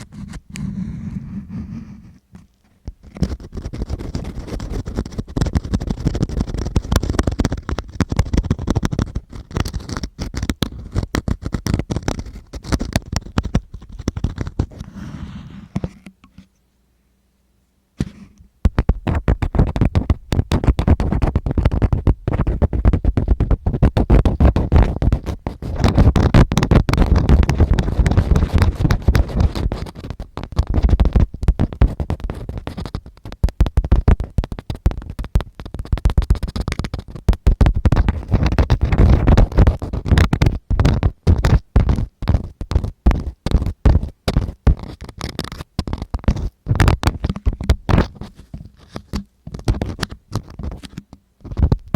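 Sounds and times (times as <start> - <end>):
tools scratching against microphone: 0.0 - 16.6, 18.0 - 51.9.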